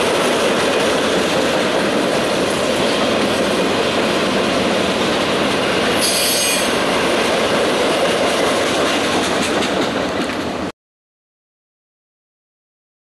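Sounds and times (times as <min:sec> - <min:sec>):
train wheels rumbling on track: 0:00.0 - 0:10.7
high-pitched wheel squeal: 0:06.0 - 0:06.8.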